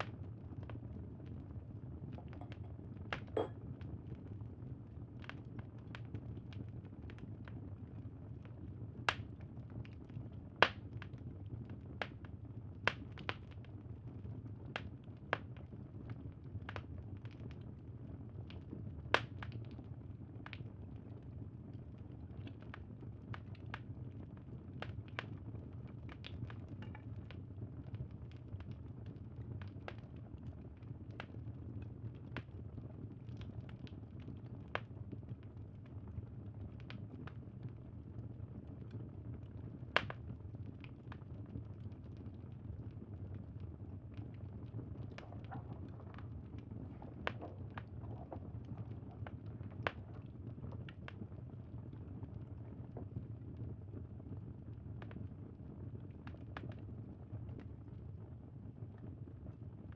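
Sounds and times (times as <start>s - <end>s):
wood fire crackling: 40.0s - 51.4s.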